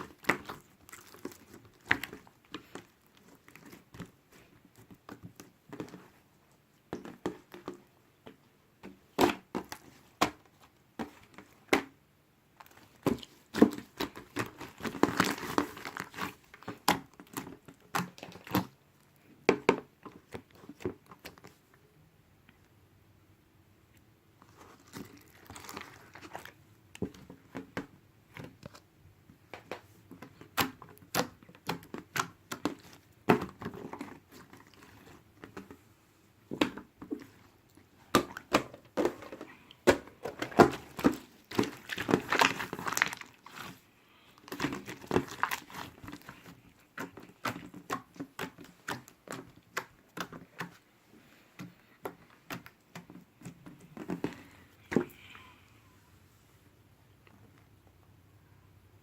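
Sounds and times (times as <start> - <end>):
packaging crinkling: 0.0 - 3.8, 12.7 - 18.7, 24.4 - 26.6, 38.2 - 43.8, 44.4 - 50.4.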